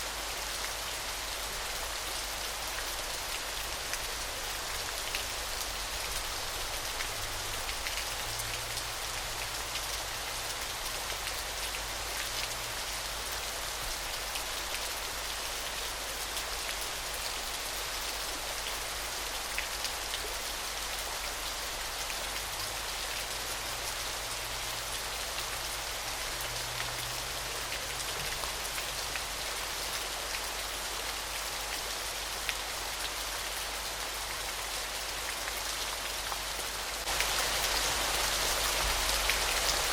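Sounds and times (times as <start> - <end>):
waterfall rushing: 37.0 - 39.9.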